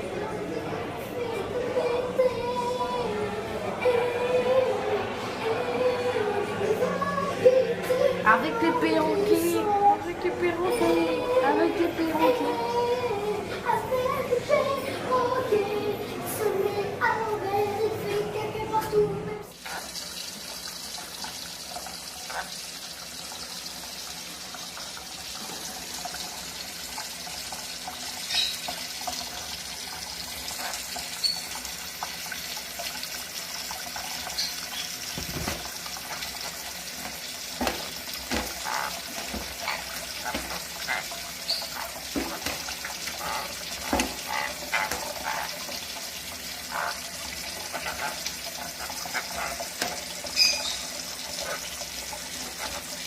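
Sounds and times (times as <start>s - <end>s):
water running from tap: 19.5s - 53.0s
splashes and knocks: 35.2s - 35.7s, 37.6s - 40.7s, 42.0s - 42.8s.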